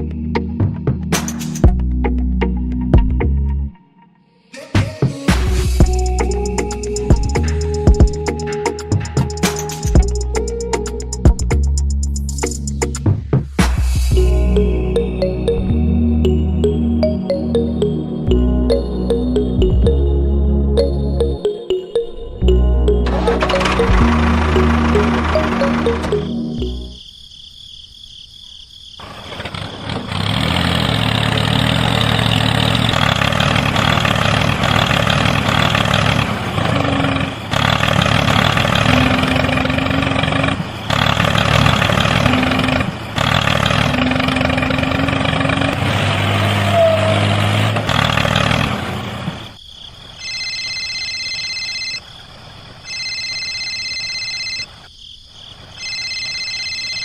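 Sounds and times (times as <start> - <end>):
tractor engine running: 5.5 - 20.1, 22.6 - 27.0, 29.0 - 49.6
high electronic beeps: 20.8 - 27.0.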